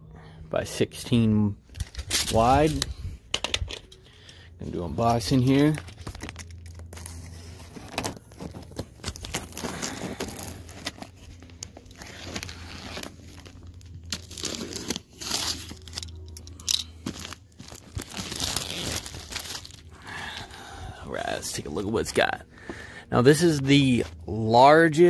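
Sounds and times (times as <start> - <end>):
cardboard tearing and crinkling: 5.5 - 16.3, 17.0 - 20.0.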